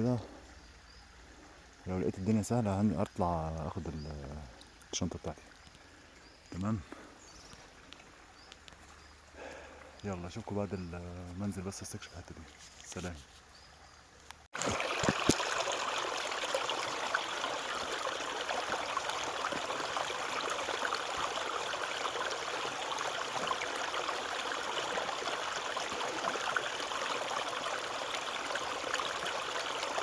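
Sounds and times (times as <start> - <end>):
stream flowing over stones: 0.0 - 30.0.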